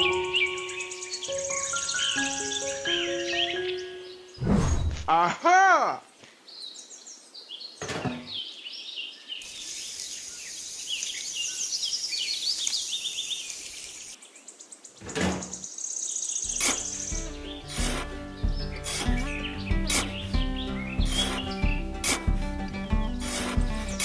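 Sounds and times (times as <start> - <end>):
music: 0.0 - 4.4, 16.5 - 24.0
small birds chirping: 0.0 - 4.9, 5.9 - 24.0
light hiss: 9.4 - 20.4, 21.0 - 22.6, 23.2 - 24.0.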